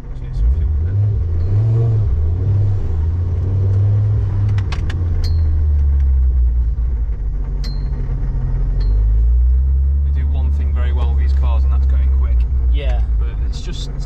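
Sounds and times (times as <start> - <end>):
car engine and road drone: 0.0 - 14.0
clicks and rattles inside car: 3.2 - 14.0.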